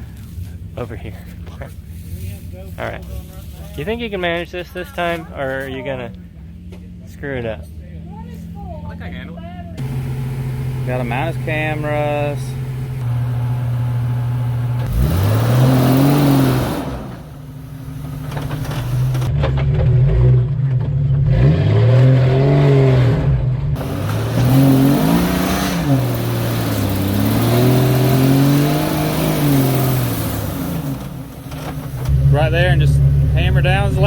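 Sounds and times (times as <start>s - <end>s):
car engine revving: 8.4s - 34.0s.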